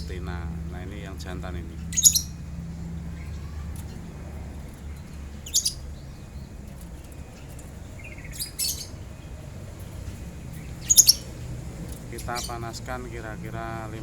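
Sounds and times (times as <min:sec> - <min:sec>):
birds giving shrill chirps: 0:00.0 - 0:14.0.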